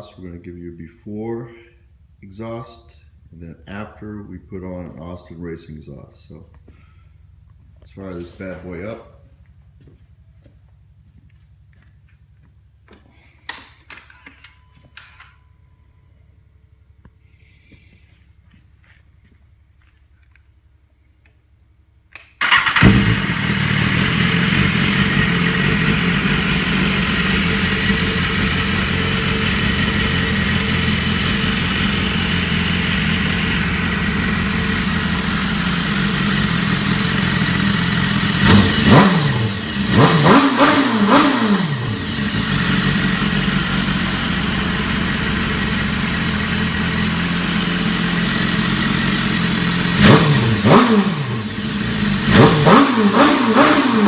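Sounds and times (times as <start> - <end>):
motorcycle engine starting and idling: 0.0 - 17.4, 18.3 - 54.0.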